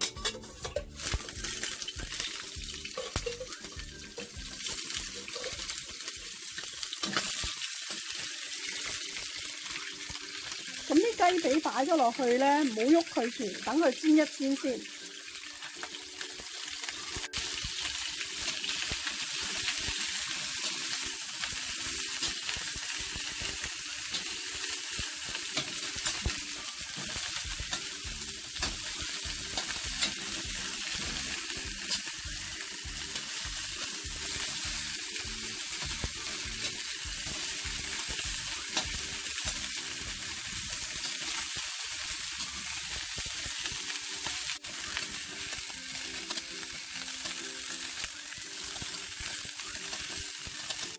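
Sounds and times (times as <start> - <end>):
chicken sizzling in hot oil: 0.0 - 50.9.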